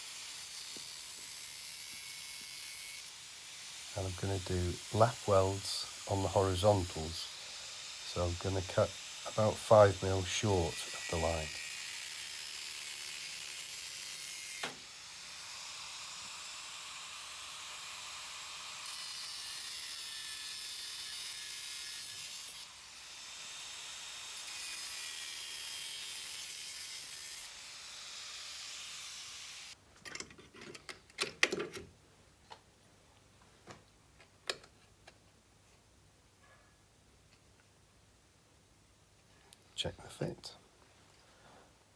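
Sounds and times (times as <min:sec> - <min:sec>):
power tool cutting sheet steel: 0:00.0 - 0:29.8
metal clicks and knocks: 0:30.0 - 0:31.9.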